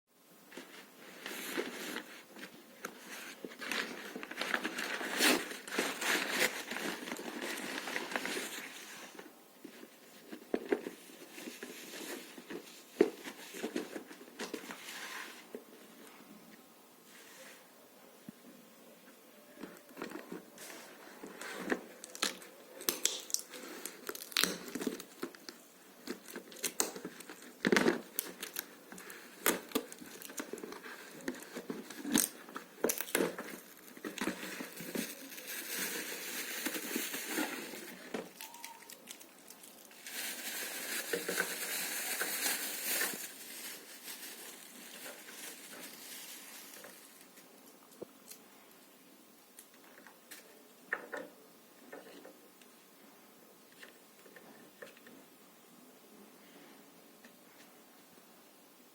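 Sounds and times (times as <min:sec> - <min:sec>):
plastic packaging crinkling: 0:00.5 - 0:14.8, 0:19.9 - 0:48.4
packaging rustling: 0:00.5 - 0:15.6, 0:19.9 - 0:47.5.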